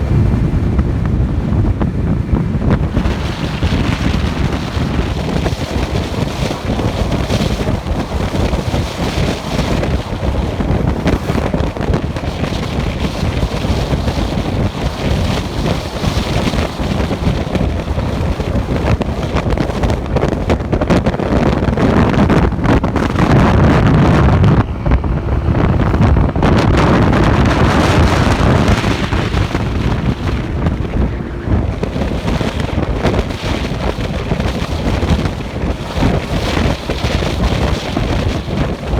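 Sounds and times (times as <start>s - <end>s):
motorcycle road and engine noise: 0.0s - 38.9s
wind buffeting microphone: 0.0s - 38.9s.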